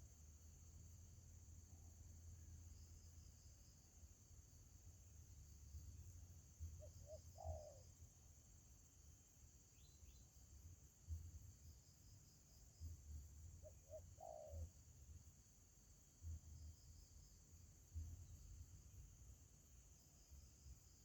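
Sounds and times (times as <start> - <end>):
crickets droning: 0.0 - 21.0
dove cooing: 7.0 - 7.8, 13.8 - 14.7.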